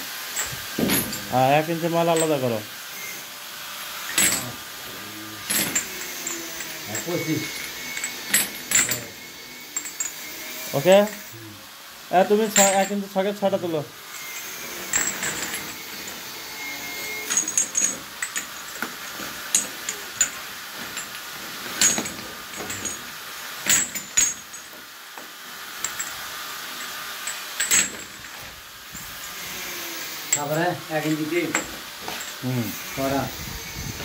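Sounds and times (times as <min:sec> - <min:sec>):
metal pipe fittings clinking: 0:00.4 - 0:02.5, 0:04.1 - 0:04.6, 0:05.4 - 0:10.2, 0:12.3 - 0:13.5, 0:14.2 - 0:24.8, 0:26.8 - 0:29.4.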